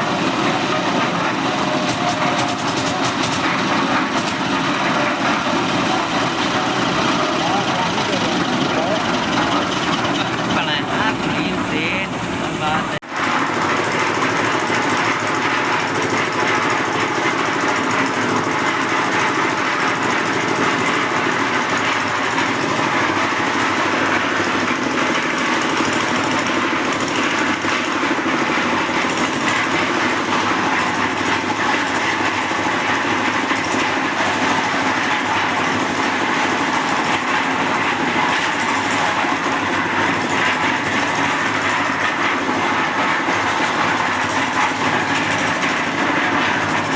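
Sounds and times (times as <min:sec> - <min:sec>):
concrete mixer running: 0:00.0 - 0:46.9.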